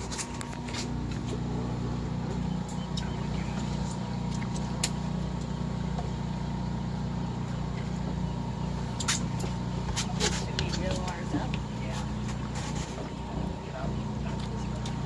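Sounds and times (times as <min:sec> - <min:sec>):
boat engine droning: 0:00.0 - 0:15.0
sharp clicks from gear: 0:02.3 - 0:05.6, 0:08.9 - 0:10.8.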